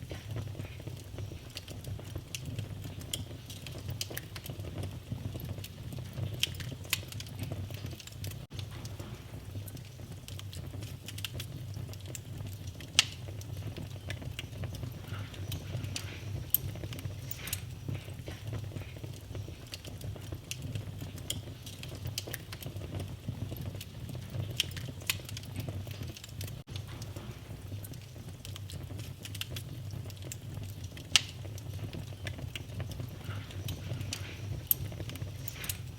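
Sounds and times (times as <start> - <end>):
fire crackling: 0.0 - 35.9
low rumble of fire: 0.0 - 35.9
sharp pops of fire: 0.0 - 35.9.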